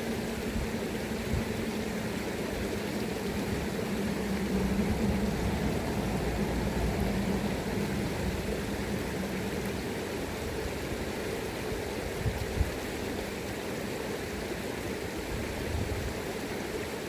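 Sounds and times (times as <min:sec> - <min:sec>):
river current rushing: 0:00.0 - 0:17.0
wind gusting on microphone: 0:00.2 - 0:11.1.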